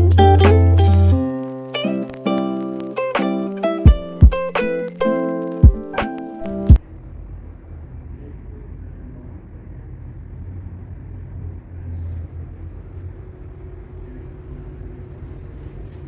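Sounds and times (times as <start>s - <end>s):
muffled low rumble: 6.8s - 15.7s.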